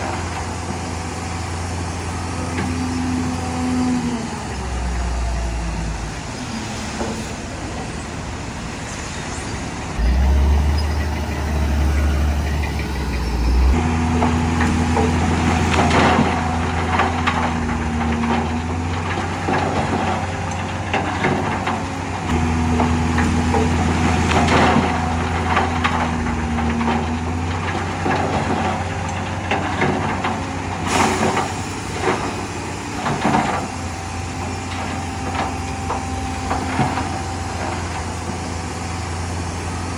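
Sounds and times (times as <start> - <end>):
diesel machinery engine drone: 0.0 - 39.9
metal clanks and knocks: 10.0 - 38.6.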